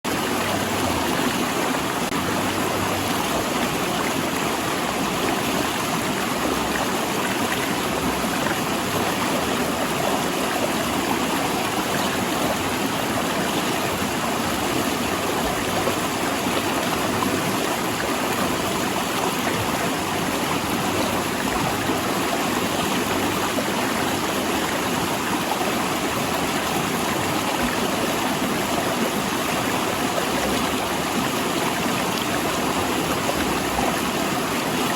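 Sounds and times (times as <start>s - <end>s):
river water rushing over rocks: 0.1s - 34.9s.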